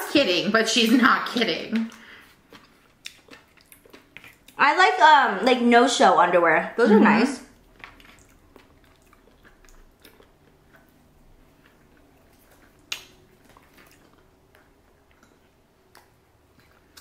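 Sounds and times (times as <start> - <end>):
faint chewing: 1.7 - 4.6, 7.5 - 17.0.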